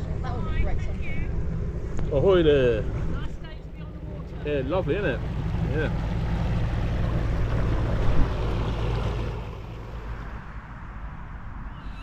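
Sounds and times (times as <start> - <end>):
motorboat engine drone: 0.0 - 11.4
water noise: 0.0 - 11.7
wind noise: 6.1 - 12.0.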